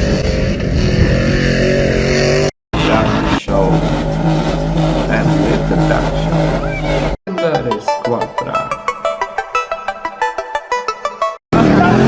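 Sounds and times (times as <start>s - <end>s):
loud pickup truck exhaust: 0.0s - 7.2s.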